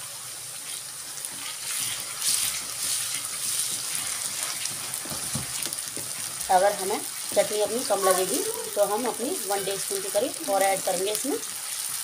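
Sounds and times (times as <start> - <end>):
onions sizzling in hot oil: 0.0 - 12.0
wooden spatula stirring: 0.7 - 9.9.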